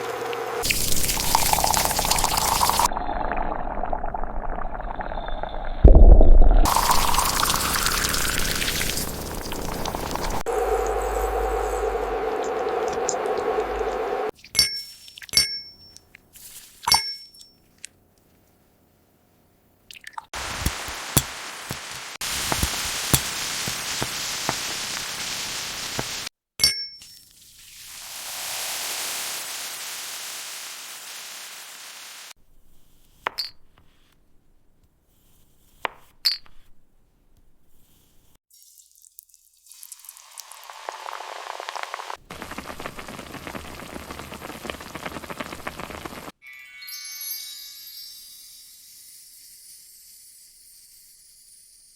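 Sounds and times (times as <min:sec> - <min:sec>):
steady hiss: 0:00.0 - 0:02.9, 0:20.4 - 0:26.3, 0:27.4 - 0:32.4, 0:40.0 - 0:46.4
glass clinks: 0:14.5 - 0:16.0, 0:16.9 - 0:17.6, 0:26.6 - 0:27.2.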